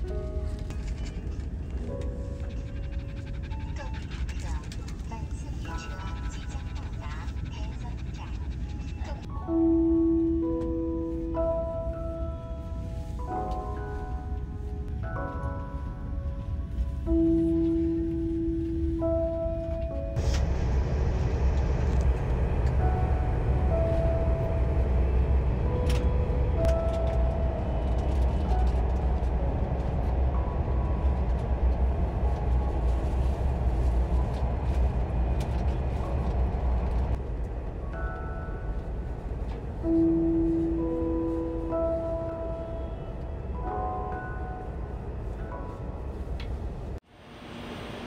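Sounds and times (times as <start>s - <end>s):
train carriage rumble: 0.0s - 47.0s
chime-like background music: 22.8s - 33.8s.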